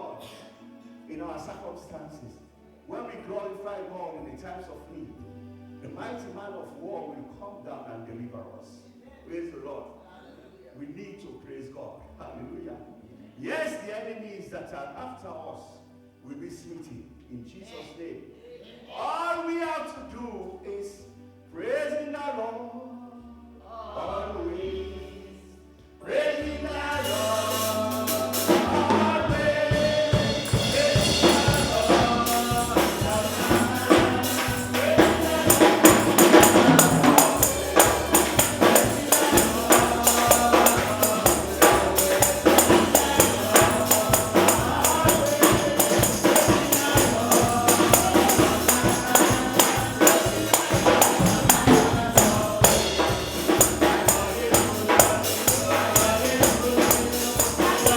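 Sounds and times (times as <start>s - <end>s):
choir singing over band: 23.7s - 57.9s
tambourine beat: 27.0s - 57.9s.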